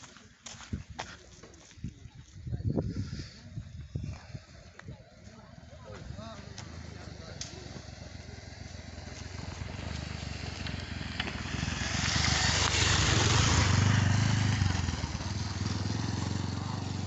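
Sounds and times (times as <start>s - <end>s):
road and wind noise: 0.0s - 17.0s
vehicle engine running: 4.3s - 17.0s.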